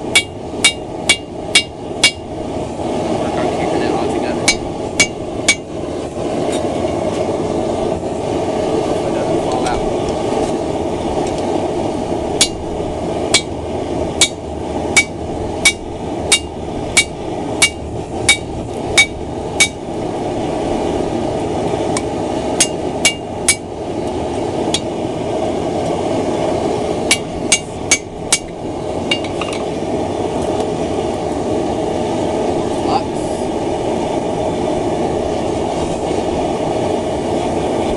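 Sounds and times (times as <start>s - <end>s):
hammer blows on hot steel: 0.0s - 2.3s, 4.4s - 7.3s, 11.2s - 20.0s, 21.8s - 23.7s, 26.7s - 29.6s
forge roaring: 0.0s - 37.9s.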